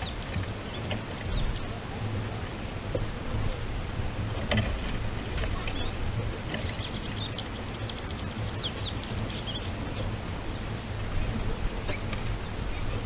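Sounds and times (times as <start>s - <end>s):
small bird twittering: 0.0s - 1.8s, 6.6s - 10.2s
steady low rumble: 0.0s - 13.0s.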